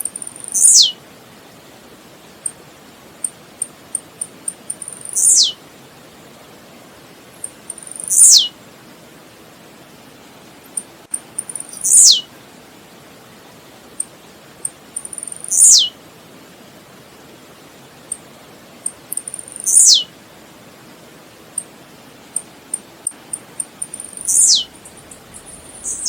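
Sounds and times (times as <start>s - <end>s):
bird song with sweeping note: 24.1s - 26.0s.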